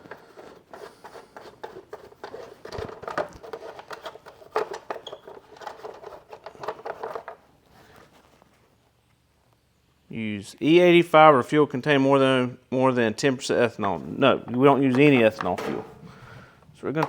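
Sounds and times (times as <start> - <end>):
hands clicking and scraping on mower: 0.0 - 7.4, 14.5 - 16.1.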